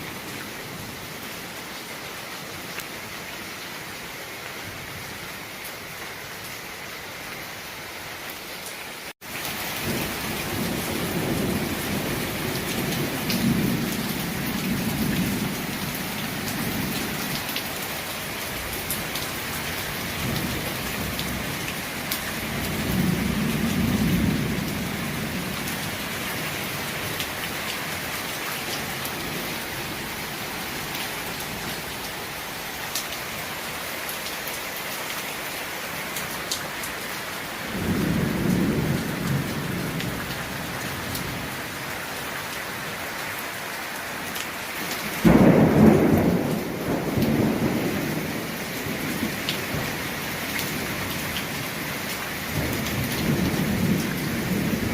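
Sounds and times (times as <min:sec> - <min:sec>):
heavy rain: 0:00.0 - 0:54.9
thunder rolling: 0:45.2 - 0:49.9.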